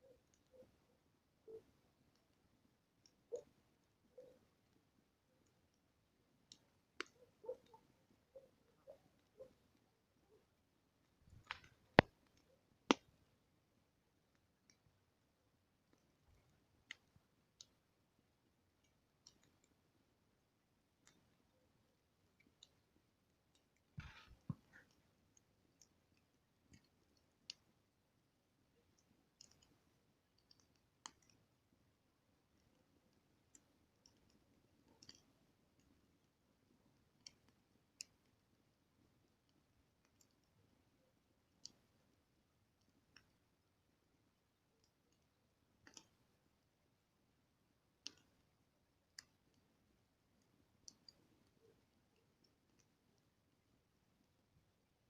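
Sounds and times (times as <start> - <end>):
low fire hiss: 0.0 - 55.0
campfire crackling: 9.0 - 54.2
fire pops and snaps: 11.2 - 13.2.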